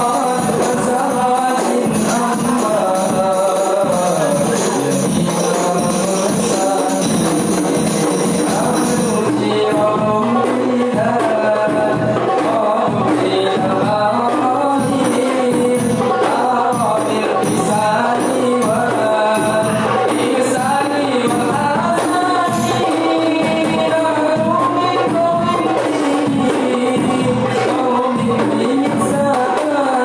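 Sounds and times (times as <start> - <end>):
frame drums playing: 0.0 - 30.0
voices singing: 0.0 - 30.0.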